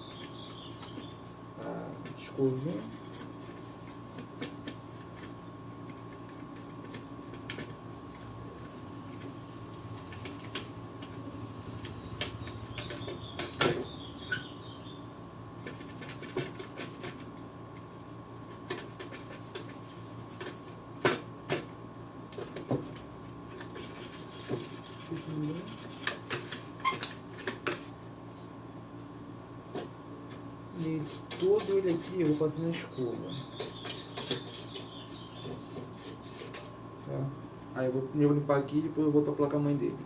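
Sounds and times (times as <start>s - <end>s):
brush scrubbing plastic: 18.6s - 20.8s, 23.6s - 27.9s, 30.8s - 36.7s.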